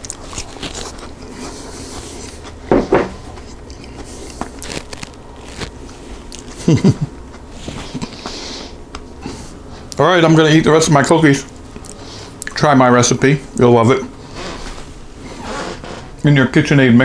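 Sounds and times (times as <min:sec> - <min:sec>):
man chewing cookie: 0:00.0 - 0:10.0, 0:11.5 - 0:12.6.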